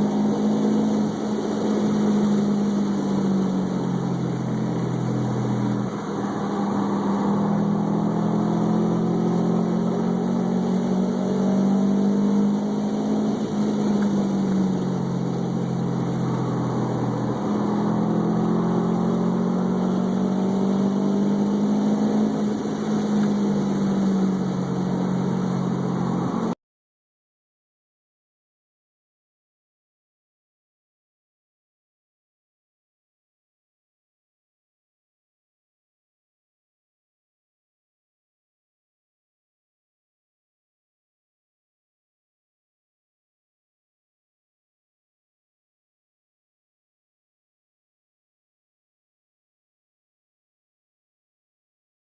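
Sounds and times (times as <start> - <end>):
race car engine accelerating: 0.0 - 26.6.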